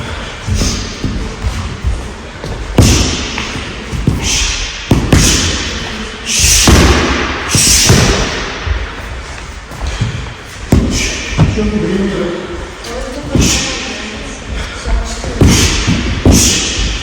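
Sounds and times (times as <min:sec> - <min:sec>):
punches and kicks thudding on mat: 0:00.4 - 0:05.8, 0:06.5 - 0:08.8, 0:10.7 - 0:11.6, 0:15.3 - 0:17.0
hiss: 0:06.2 - 0:08.4.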